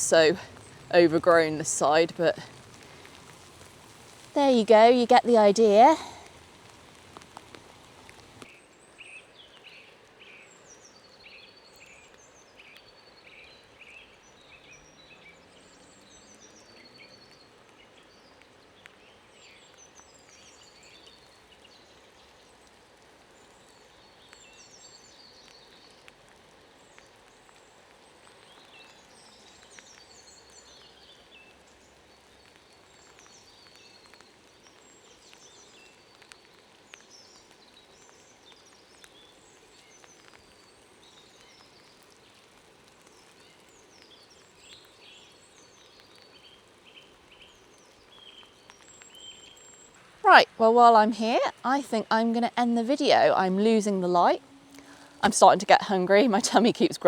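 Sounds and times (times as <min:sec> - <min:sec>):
quiet background hiss: 0:00.0 - 0:09.5, 0:43.0 - 0:57.0
small birds chirping and trilling: 0:43.1 - 0:56.5.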